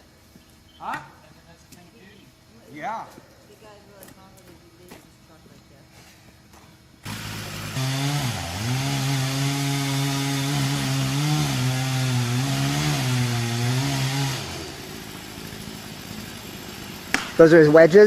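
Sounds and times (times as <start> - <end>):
chainsaw cutting: 7.0 - 18.0.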